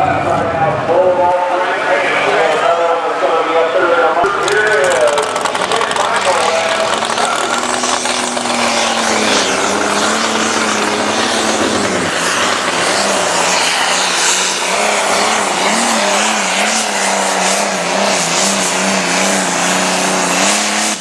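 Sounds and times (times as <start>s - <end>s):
diesel engine howling at high revs: 4.2s - 21.0s.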